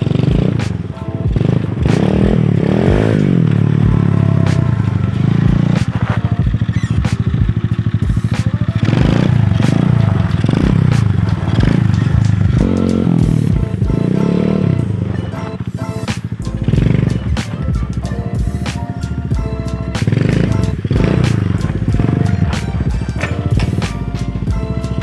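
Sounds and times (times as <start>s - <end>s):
motorbike engine revving: 0.0s - 15.1s, 20.0s - 23.8s.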